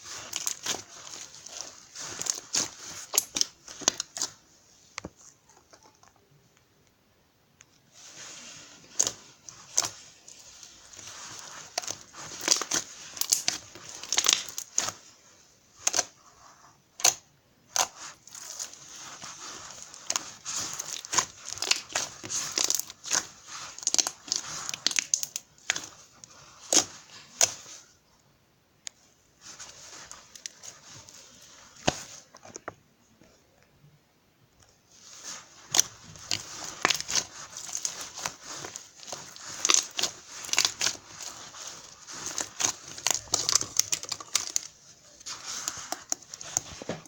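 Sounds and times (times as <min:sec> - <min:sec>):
crinkling and tearing: 0:00.0 - 0:04.4, 0:08.0 - 0:16.2, 0:17.0 - 0:27.9, 0:34.9 - 0:47.0.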